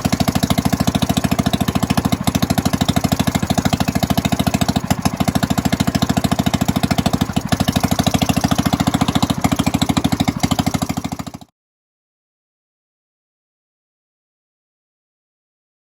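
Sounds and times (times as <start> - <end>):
single-cylinder engine running: 0.0 - 11.5
sharp engine clicks: 0.1 - 11.4.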